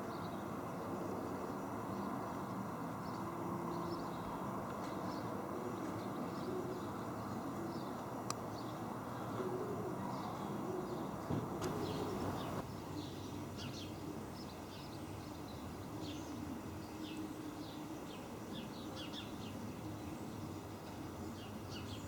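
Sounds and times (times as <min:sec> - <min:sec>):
small birds chirping: 0:10.0 - 0:22.0.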